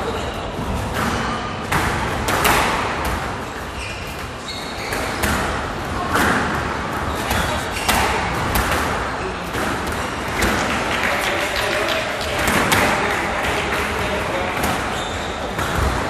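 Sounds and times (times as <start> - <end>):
shoe squeaks: 3.5 - 5.4, 7.1 - 8.2, 14.8 - 15.7.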